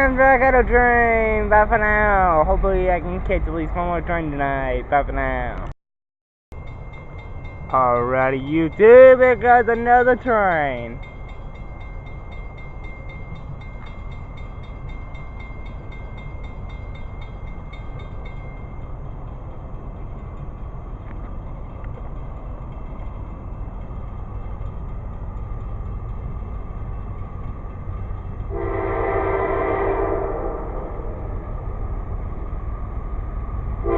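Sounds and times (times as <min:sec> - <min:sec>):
train rumble: 0:00.0 - 0:05.7, 0:06.5 - 0:33.9
locomotive air horn chord: 0:28.5 - 0:31.2.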